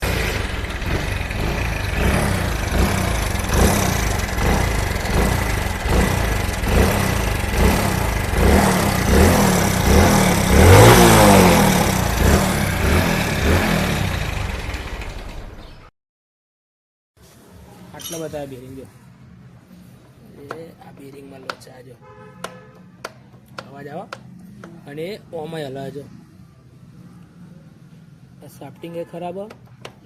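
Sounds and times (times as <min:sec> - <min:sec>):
motorcycle engine running noisily: 0:00.0 - 0:15.9.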